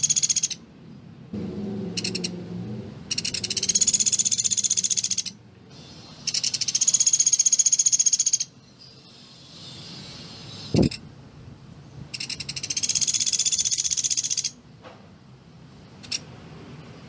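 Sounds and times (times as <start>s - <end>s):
woodpecker high-pitched trills: 0.0s - 0.6s, 3.1s - 5.4s, 6.2s - 11.0s, 12.2s - 14.6s.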